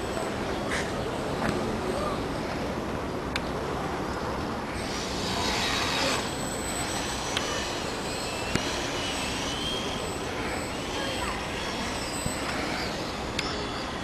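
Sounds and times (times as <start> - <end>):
electric motor whine: 4.8 - 14.0.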